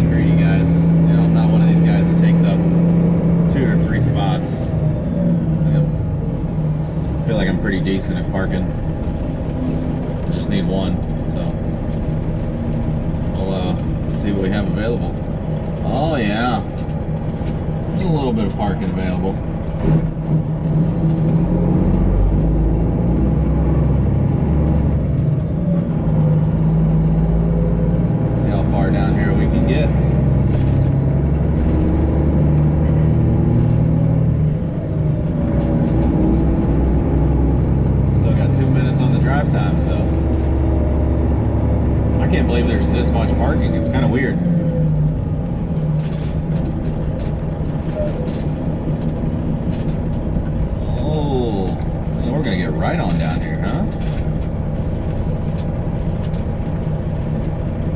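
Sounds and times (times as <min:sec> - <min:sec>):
truck diesel engine droning: 0:00.0 - 0:57.9
light clicks and rattles: 0:45.8 - 0:57.7.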